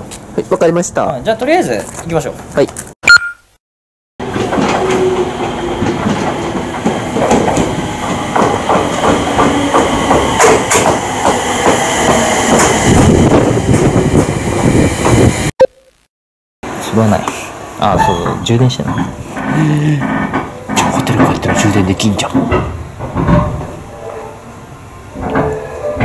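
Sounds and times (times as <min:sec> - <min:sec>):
wheels clicking over rail joints: 0:04.2 - 0:13.1, 0:17.9 - 0:24.5
electric train rolling past: 0:04.2 - 0:15.5, 0:16.7 - 0:26.0.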